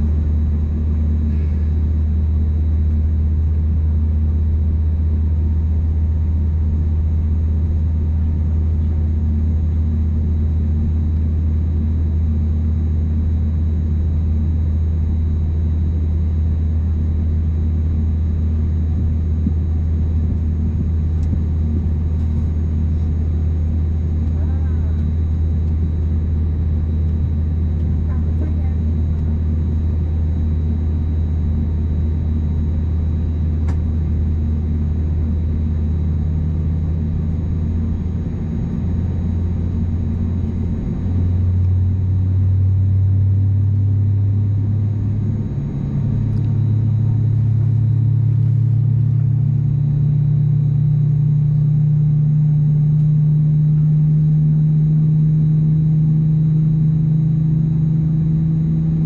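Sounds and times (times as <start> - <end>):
jet engines humming in cabin: 0.0 - 59.0.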